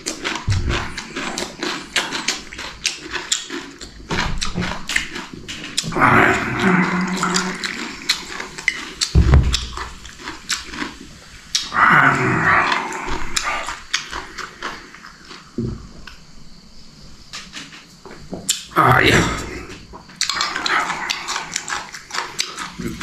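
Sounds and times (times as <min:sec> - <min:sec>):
crisp chewing clicks: 0:00.0 - 0:06.0, 0:20.1 - 0:23.0
low thud: 0:09.1 - 0:10.1.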